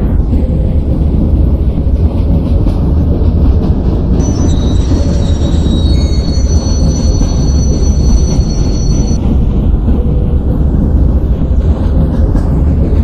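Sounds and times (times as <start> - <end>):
train rumbling on rails: 0.0 - 13.0
thin high-pitched tones: 4.2 - 9.2.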